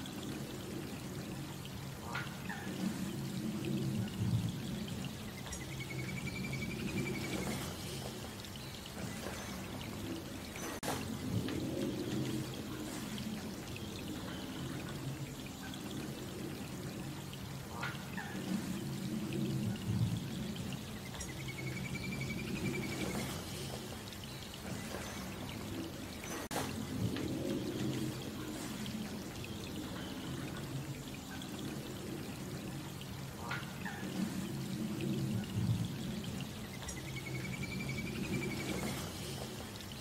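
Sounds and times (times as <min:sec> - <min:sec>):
rain falling on a pond: 0:00.0 - 0:40.0
running water rushing: 0:00.0 - 0:40.0
water drips: 0:00.0 - 0:40.0.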